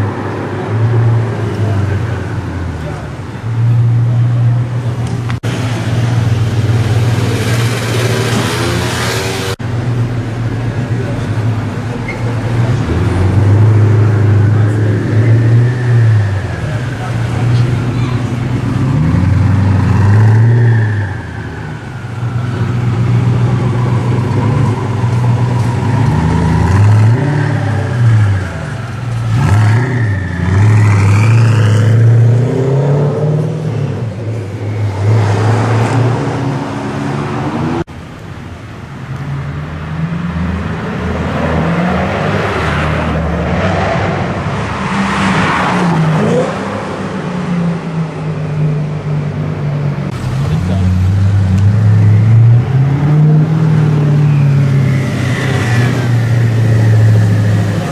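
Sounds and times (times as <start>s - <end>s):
car engine revving: 0.0s - 37.9s, 39.8s - 57.9s.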